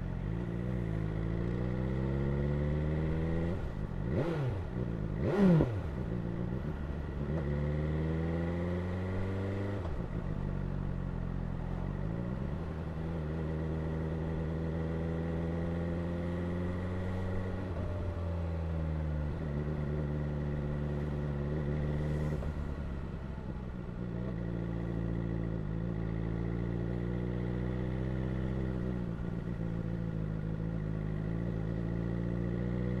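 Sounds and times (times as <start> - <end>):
motorcycle engine revving: 0.2 - 10.0.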